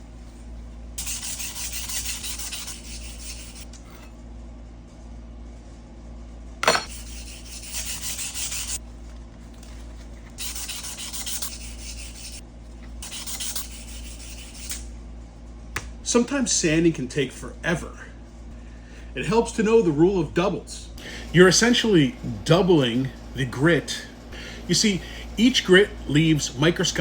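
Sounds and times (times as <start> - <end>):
sandpaper scratching on wood: 1.0 - 3.7, 6.9 - 8.8, 10.4 - 12.4, 13.0 - 14.8.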